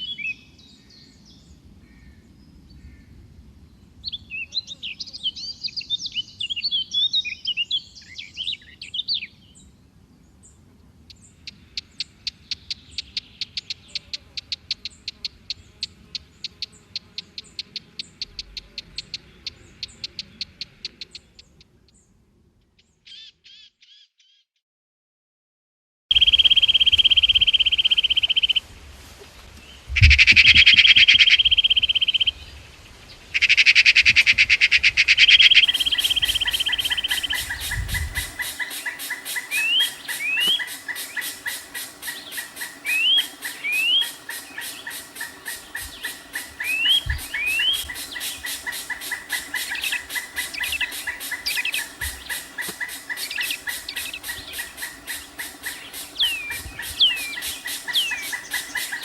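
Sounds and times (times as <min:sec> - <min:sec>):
high buzzy bird trills: 0:35.2 - 0:59.0
bird rising chirps: 0:35.3 - 0:59.0.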